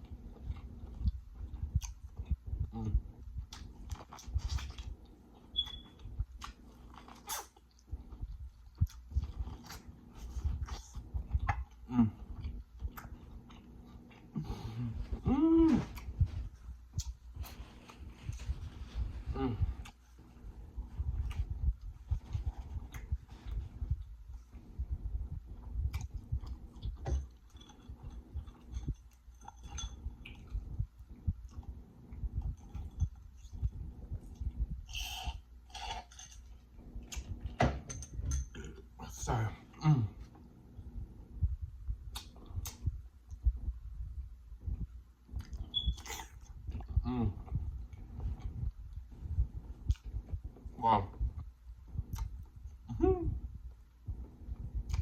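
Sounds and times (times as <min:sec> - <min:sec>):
chewing and lip smacking: 0:00.0 - 0:14.4, 0:42.0 - 0:43.5, 0:45.2 - 0:52.9, 0:54.6 - 0:55.0
person chewing food: 0:00.0 - 0:37.6, 0:42.0 - 0:43.7, 0:45.2 - 0:52.9, 0:54.1 - 0:55.0.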